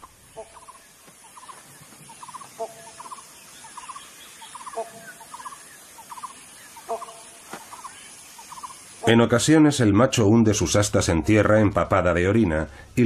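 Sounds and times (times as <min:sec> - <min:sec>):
low bird clucking: 0:00.0 - 0:09.2
rattling gobbling bird calls: 0:00.0 - 0:09.2.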